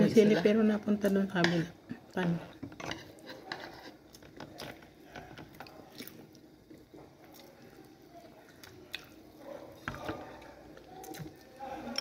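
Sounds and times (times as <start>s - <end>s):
person chewing food: 3.0s - 12.0s.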